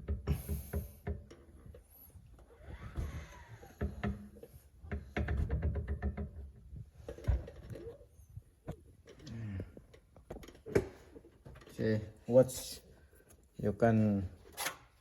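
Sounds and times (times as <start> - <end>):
axle hub clicks and knocks: 0.0 - 2.0, 3.7 - 8.0.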